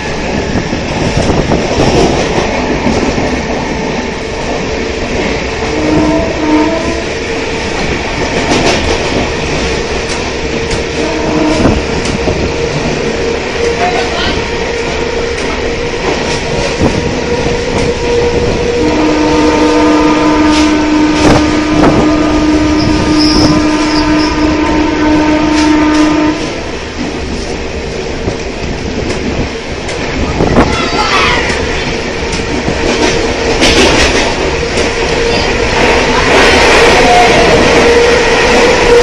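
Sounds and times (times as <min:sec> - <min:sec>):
train rushing noise: 0:00.0 - 0:39.0
train horn: 0:05.6 - 0:07.4, 0:10.6 - 0:15.4, 0:16.6 - 0:26.8, 0:34.6 - 0:39.0.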